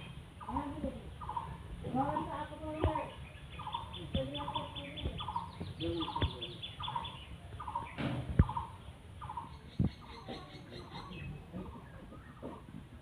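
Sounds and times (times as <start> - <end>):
birds calling: 0.0 - 13.0
sharp knocks: 8.0 - 8.6.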